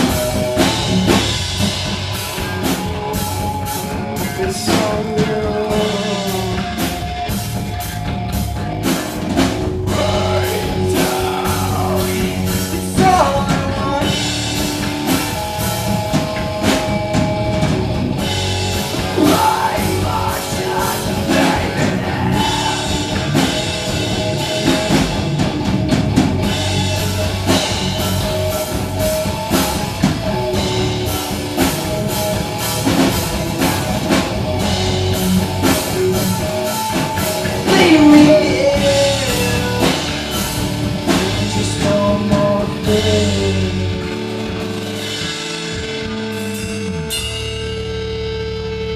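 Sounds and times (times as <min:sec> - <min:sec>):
drum kit: 0:00.0 - 0:48.9
electric guitar: 0:00.0 - 0:48.9
person singing: 0:04.0 - 0:07.1, 0:09.9 - 0:14.3, 0:18.9 - 0:23.8, 0:36.7 - 0:44.4.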